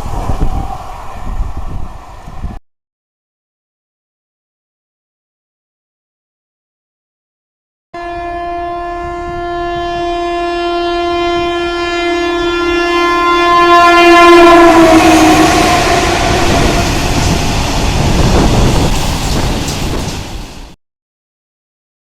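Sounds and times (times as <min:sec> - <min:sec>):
train rushing past: 0:00.0 - 0:02.6, 0:12.6 - 0:20.8
train horn blast: 0:08.0 - 0:17.4.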